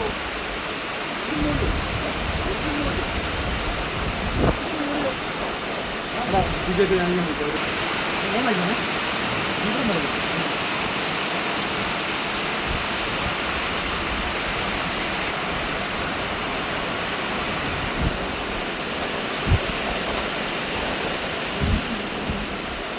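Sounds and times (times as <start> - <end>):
heavy rain falling: 0.0 - 22.9
dull low thumps: 17.8 - 18.7, 19.4 - 20.2, 21.0 - 22.9.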